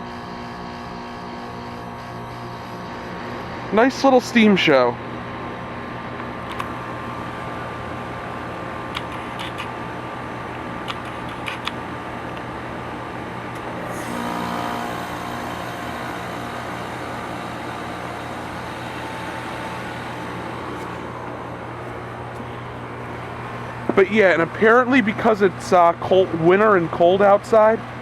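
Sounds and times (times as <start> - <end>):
heat pump unit humming: 0.0 - 28.0
small clicks: 6.4 - 6.7, 9.0 - 9.7, 10.9 - 12.5.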